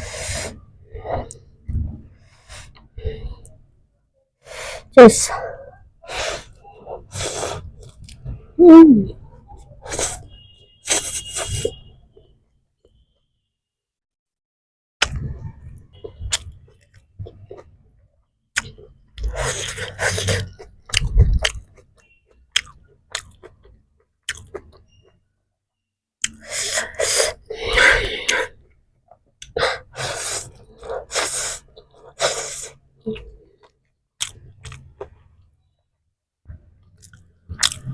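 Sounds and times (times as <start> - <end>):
person chewing food: 18.6 - 25.0, 29.4 - 35.3, 36.9 - 37.9
wet mouth clicks and smacks: 24.2 - 24.7, 34.2 - 34.9.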